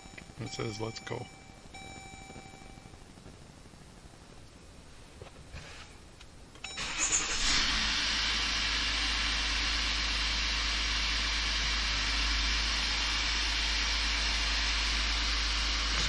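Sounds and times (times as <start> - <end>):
diesel engine cranking and starting: 6.7 - 16.0
diesel engine idling: 6.8 - 16.0.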